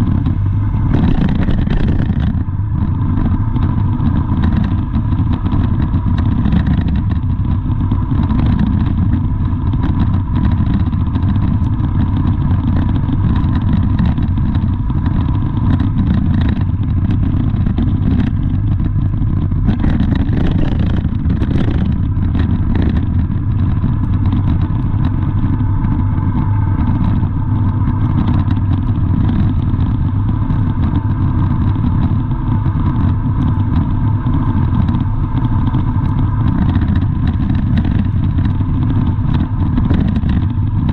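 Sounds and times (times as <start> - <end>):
faint steady whine: 0.0 - 40.9
vehicle engine rumble: 0.0 - 40.9.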